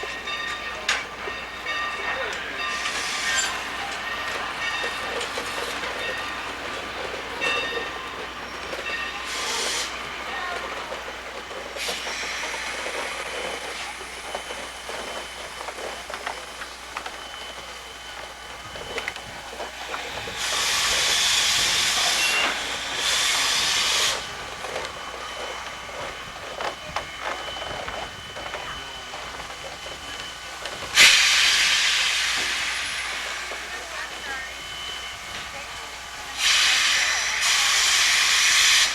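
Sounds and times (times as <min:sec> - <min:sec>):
background steam hiss: 0:00.0 - 0:38.9
steam locomotive hissing blasts: 0:00.0 - 0:38.9.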